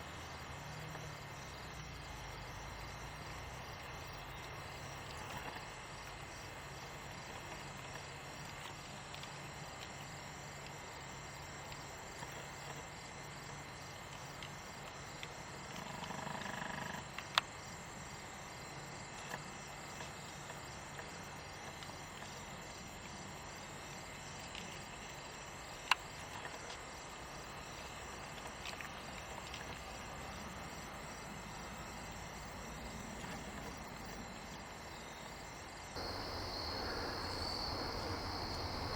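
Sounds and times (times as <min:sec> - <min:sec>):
insects chirping: 0:19.6 - 0:38.9.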